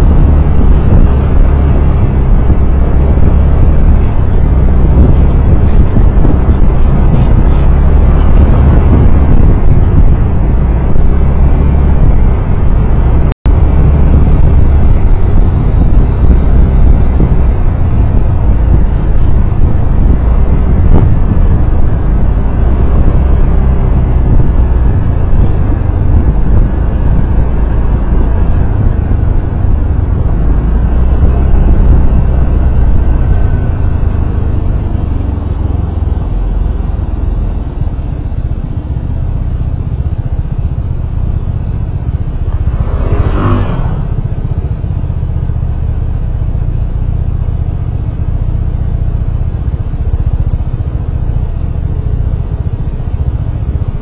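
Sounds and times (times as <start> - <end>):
vehicle engine and road rumble: 0.0 - 54.0.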